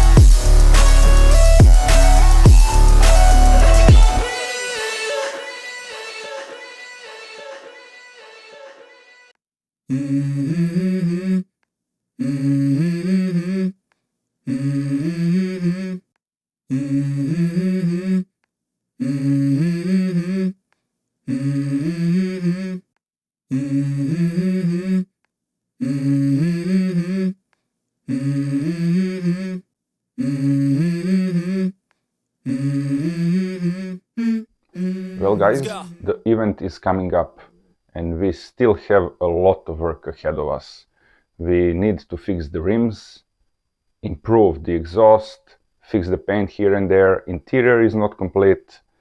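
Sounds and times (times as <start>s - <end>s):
hummed vocal melody: 0.0s - 8.8s, 32.5s - 36.0s
song: 0.0s - 8.9s.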